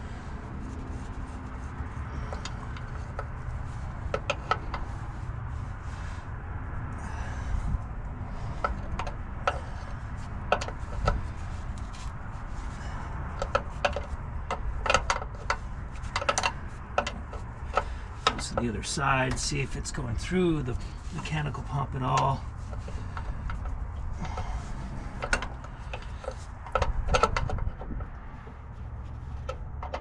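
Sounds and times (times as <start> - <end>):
engine low rumble: 0.0 - 30.0
hand tools clicking and knocking: 12.8 - 28.4, 29.4 - 30.0.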